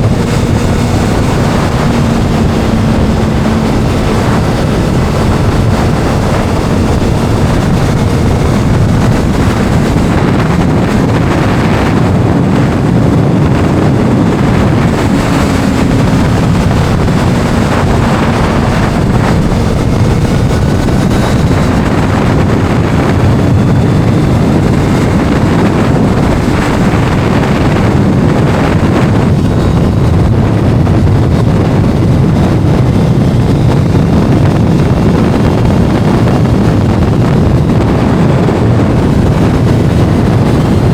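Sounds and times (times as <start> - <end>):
motorcycle engine: 0.0 - 40.9
wind rushing over microphone: 0.0 - 40.9.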